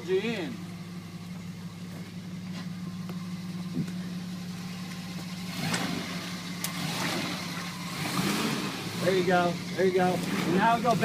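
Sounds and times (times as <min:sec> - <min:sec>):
off-road vehicle engine idling: 0:00.0 - 0:11.0.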